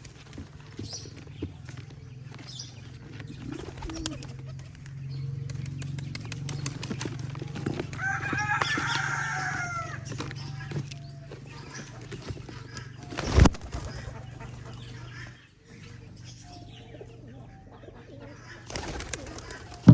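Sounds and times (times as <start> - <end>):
birds flapping in a trap: 0.0 - 15.4, 18.6 - 19.9.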